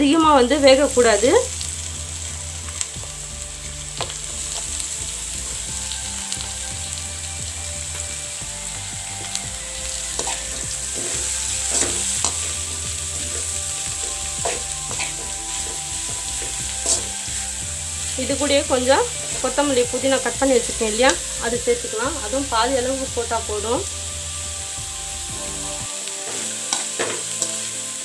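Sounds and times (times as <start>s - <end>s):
vegetables sizzling in a pan: 0.0s - 28.0s
metal ladle scraping a pan: 9.2s - 21.4s, 25.4s - 28.0s.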